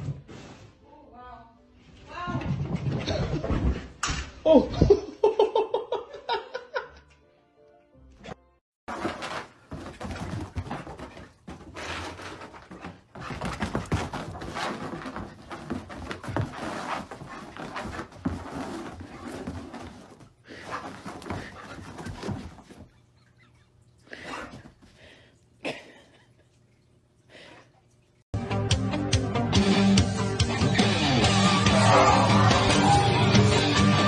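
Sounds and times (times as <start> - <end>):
dog scuffling about: 8.9 - 23.6.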